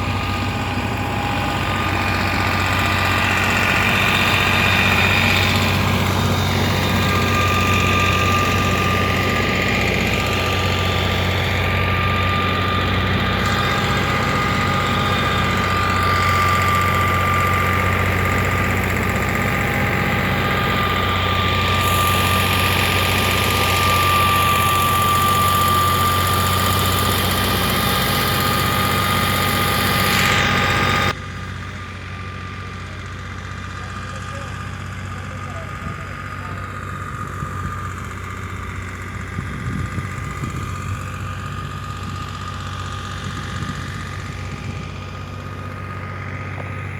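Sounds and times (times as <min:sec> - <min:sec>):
thresher high whine: 0:00.0 - 0:31.2
tractor diesel engine running: 0:00.0 - 0:46.9.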